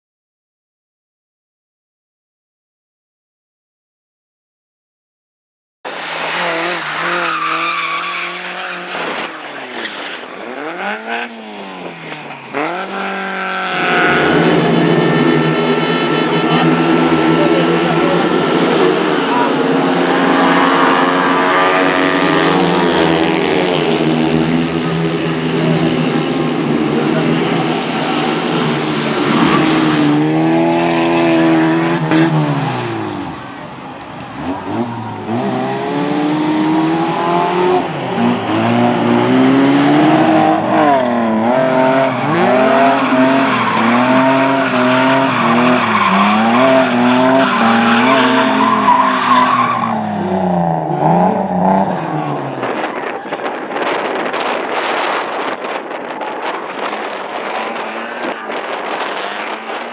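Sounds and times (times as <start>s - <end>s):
race car engine revving: 5.9s - 53.1s
tyres skidding: 5.9s - 54.8s.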